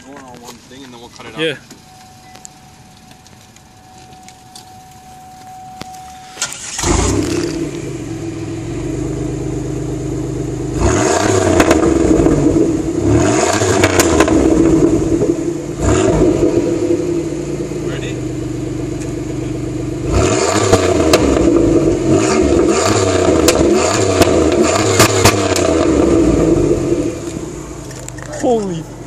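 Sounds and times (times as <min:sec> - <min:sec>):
car engine starting and idling: 0:00.0 - 0:29.0
faint steady tone: 0:01.0 - 0:06.6
car engine revving: 0:06.1 - 0:29.0.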